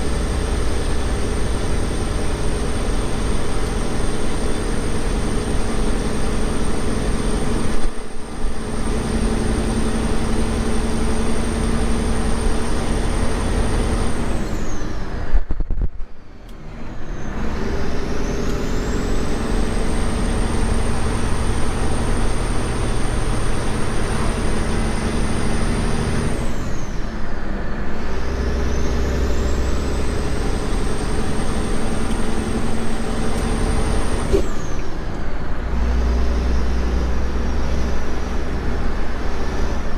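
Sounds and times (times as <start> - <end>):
truck engine rumbling: 0.0 - 39.9.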